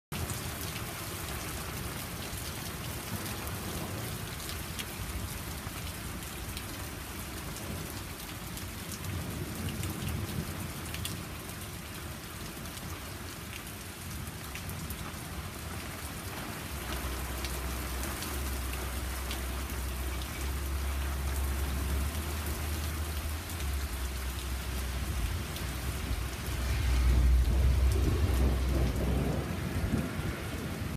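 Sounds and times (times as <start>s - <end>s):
heavy rain falling: 0.1s - 30.9s
low thunder rumbling: 16.2s - 30.9s.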